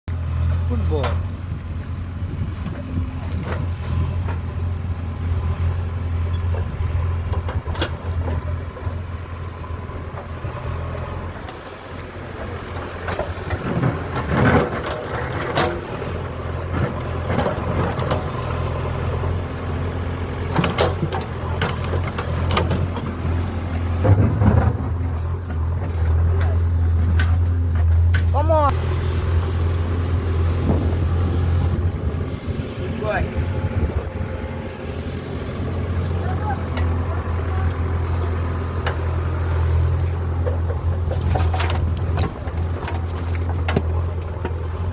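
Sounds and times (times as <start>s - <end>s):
low motor hum: 0.1s - 44.9s.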